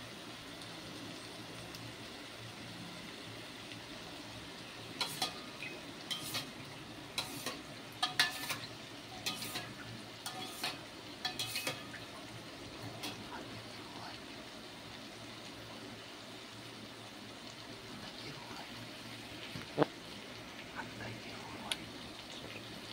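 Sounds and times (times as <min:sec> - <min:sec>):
vegetables sizzling in oil: 0:00.0 - 0:22.9
utensil clinking and scraping a pan: 0:05.0 - 0:12.0.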